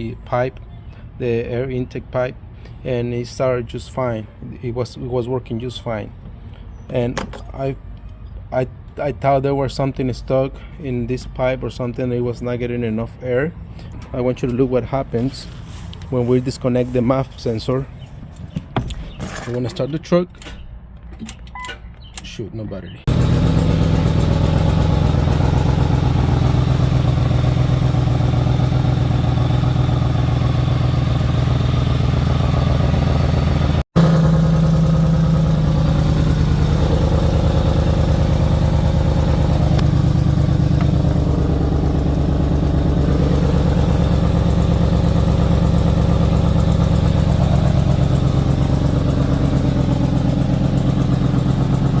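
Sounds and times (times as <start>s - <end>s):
car engine idling: 23.1s - 52.0s.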